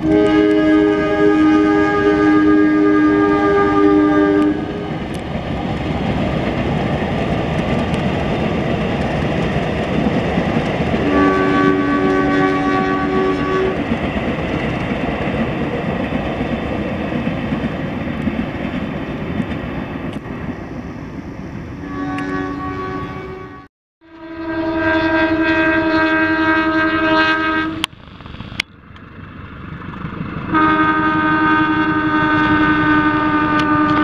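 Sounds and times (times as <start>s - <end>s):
locomotive horn blast: 0.0s - 5.2s, 11.0s - 13.9s, 21.8s - 27.9s, 30.5s - 34.0s
train wheels rumbling on rails: 0.0s - 23.7s, 27.6s - 34.0s.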